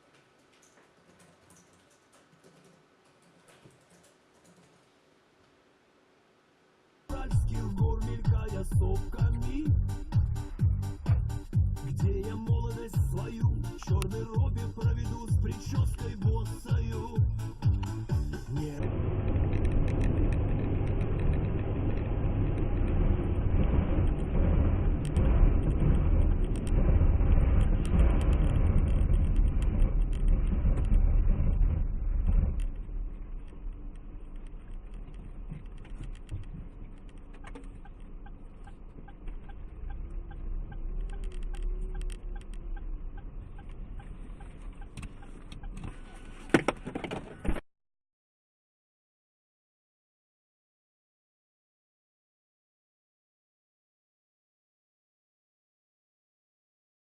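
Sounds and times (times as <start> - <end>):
car engine and road rumble: 7.1 - 47.6.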